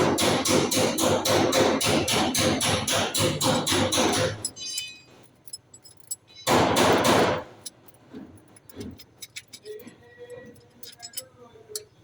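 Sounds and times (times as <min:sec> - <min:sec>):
hand tools clinking on metal: 0:03.3 - 0:06.5, 0:07.6 - 0:12.0.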